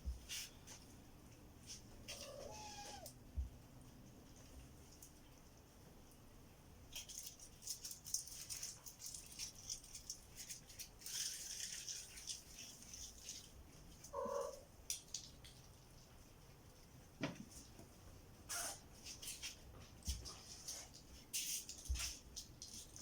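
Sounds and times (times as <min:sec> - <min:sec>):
cat mew: 0:02.1 - 0:03.1, 0:14.2 - 0:14.6.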